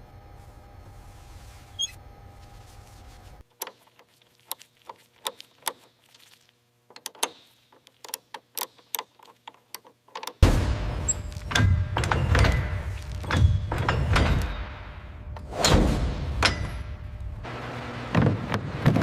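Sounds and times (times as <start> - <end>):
steady low hum: 0.0 - 8.6, 10.4 - 19.0
loud sudden bang: 10.4 - 11.1.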